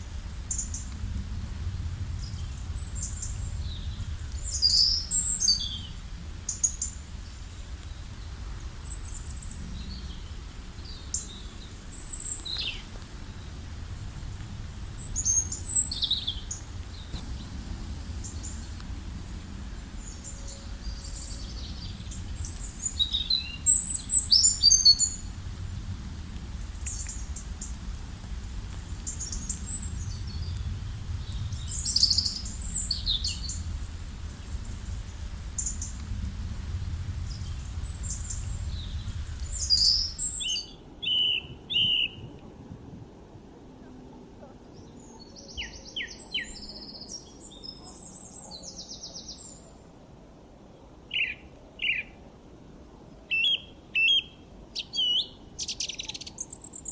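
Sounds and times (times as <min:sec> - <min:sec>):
steady low rumble: 0:00.0 - 0:44.4
songbirds chirping and trilling: 0:01.6 - 0:28.0, 0:28.7 - 0:36.4, 0:37.0 - 0:42.4, 0:43.8 - 0:50.0, 0:50.6 - 0:52.2, 0:53.2 - 0:56.9.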